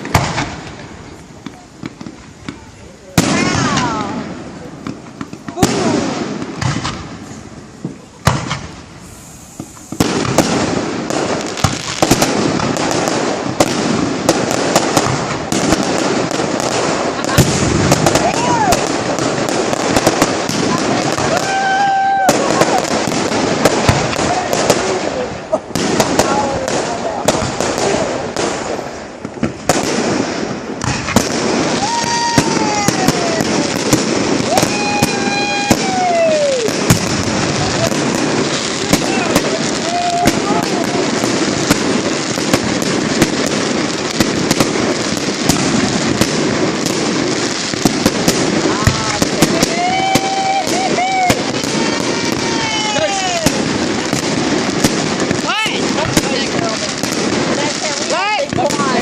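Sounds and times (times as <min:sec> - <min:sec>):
crackling firework bursts: 0:00.0 - 0:59.0
loud firework bang: 0:00.0 - 0:59.0
firework whistles sliding down: 0:08.8 - 0:10.4.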